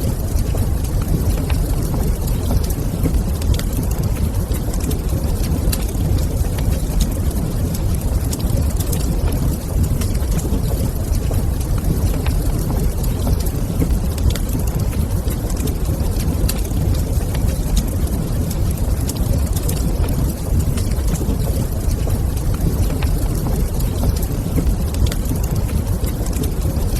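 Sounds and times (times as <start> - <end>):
fire crackling and popping: 0.0 - 26.9
fire rumbling: 0.0 - 26.9.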